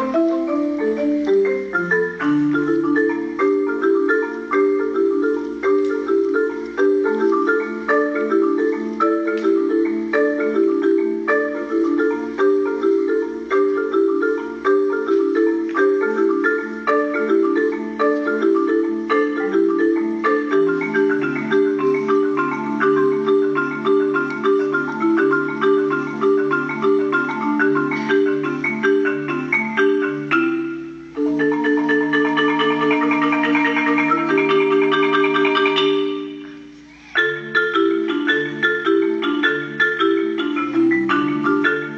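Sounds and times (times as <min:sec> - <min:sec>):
marimba played with mallets: 0:00.0 - 0:41.9.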